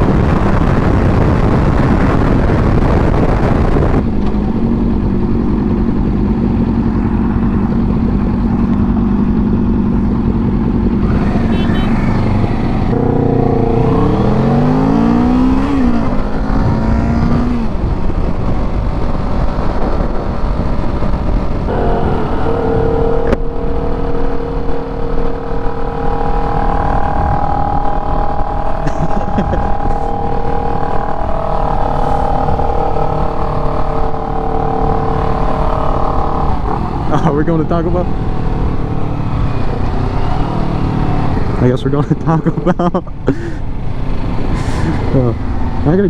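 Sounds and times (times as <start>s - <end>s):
motorcycle engine accelerating: 0.0s - 46.0s
wind rushing over microphone: 0.0s - 46.0s.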